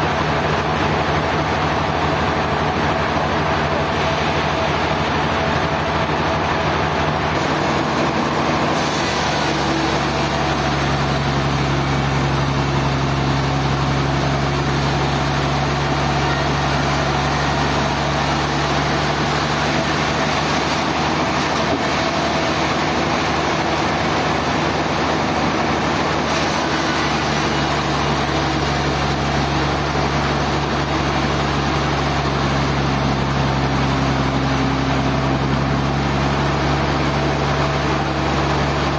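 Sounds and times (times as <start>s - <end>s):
rushing whirring machinery: 0.0s - 38.9s.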